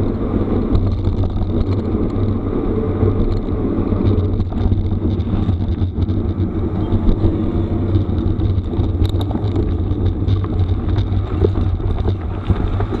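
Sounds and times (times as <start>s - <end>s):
bike tyres on gravel: 0.0s - 13.0s
wind on microphone: 0.0s - 13.0s
ticks and knocks from stones: 8.0s - 13.0s.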